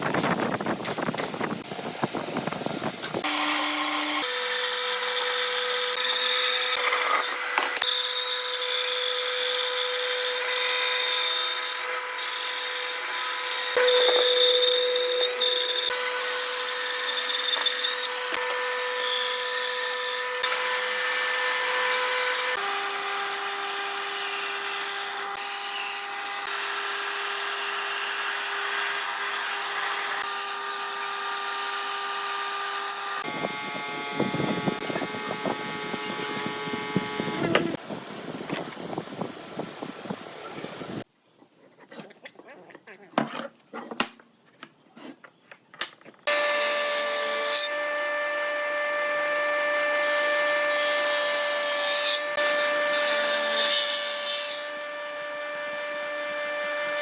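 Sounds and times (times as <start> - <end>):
power tool whining: 0.2 - 41.0.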